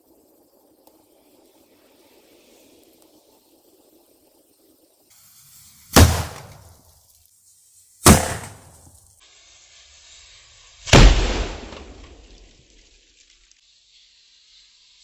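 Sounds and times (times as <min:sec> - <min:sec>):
fire extinguisher bursting with bang: 0:05.9 - 0:06.7, 0:08.0 - 0:08.8, 0:10.9 - 0:12.3.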